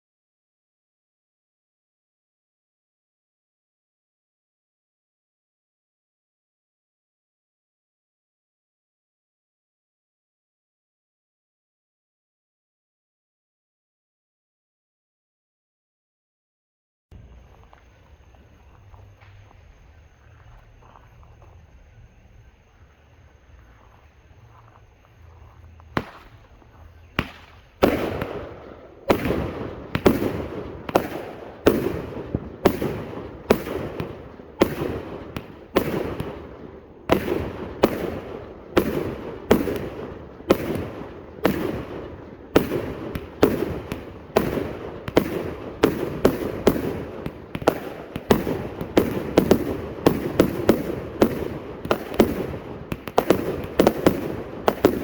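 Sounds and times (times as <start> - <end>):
firework cake firing: 17.2 - 55.0.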